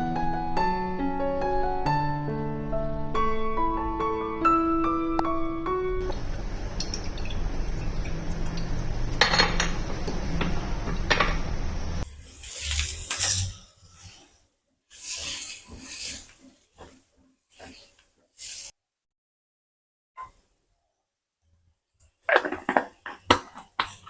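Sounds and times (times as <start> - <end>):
steady hiss: 6.0 - 18.7
dishes and utensils knocking: 6.1 - 12.0.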